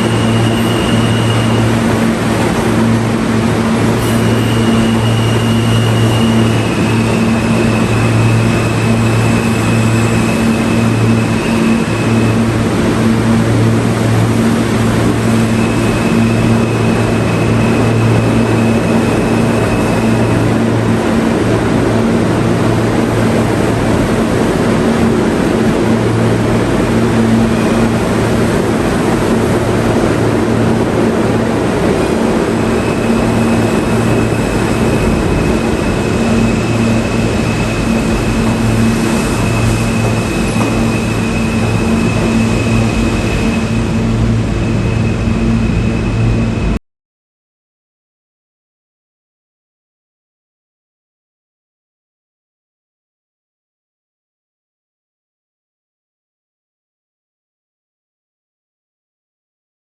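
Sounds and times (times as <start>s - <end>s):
faint high whine: 0.0s - 46.8s
subway train rumbling: 0.0s - 46.8s.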